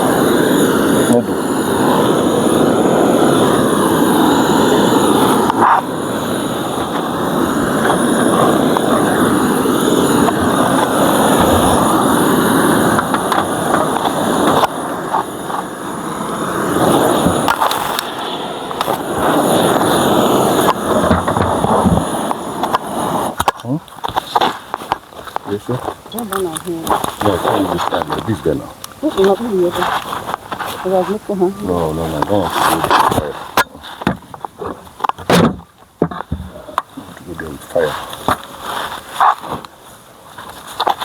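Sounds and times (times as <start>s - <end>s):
honeybees buzzing: 0.0s - 39.6s
knocks from handling hive: 21.0s - 22.1s, 33.9s - 36.6s.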